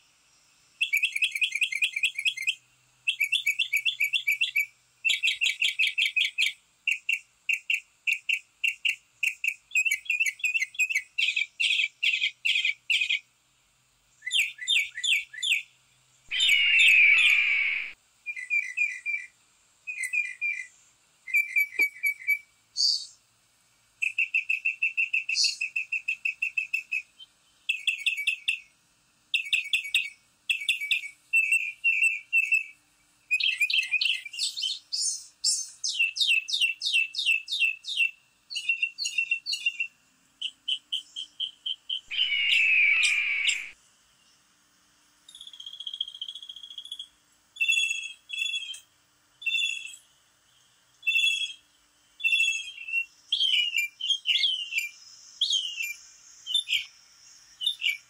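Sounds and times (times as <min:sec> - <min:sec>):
birds chirping: 0:16.3 - 0:18.0, 0:40.5 - 0:43.8
harsh bird call: 0:16.3 - 0:18.0, 0:42.1 - 0:43.8.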